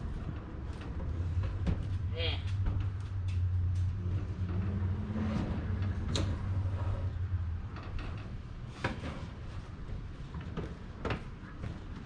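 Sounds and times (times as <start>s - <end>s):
heavy items knocking and clunking: 0.0s - 12.0s
low steady rumble: 0.0s - 12.0s.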